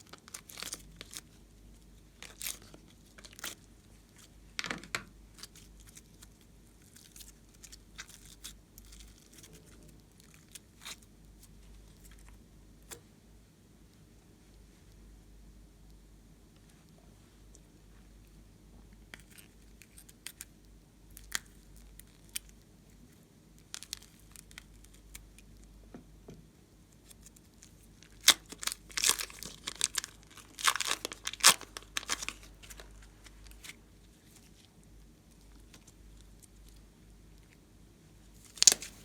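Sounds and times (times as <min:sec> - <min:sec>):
slime crackling and popping: 0:28.0 - 0:33.8, 0:38.4 - 0:39.0.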